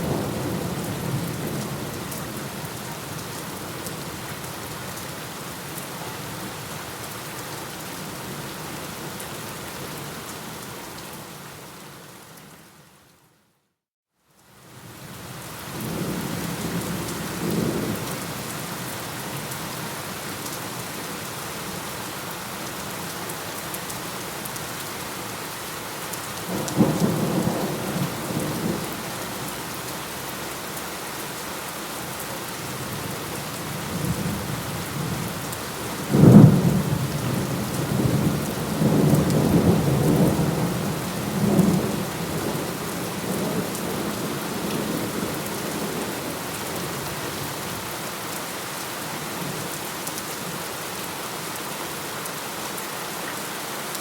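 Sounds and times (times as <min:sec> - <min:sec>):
steady rain: 0:00.0 - 0:13.4, 0:14.2 - 0:54.0.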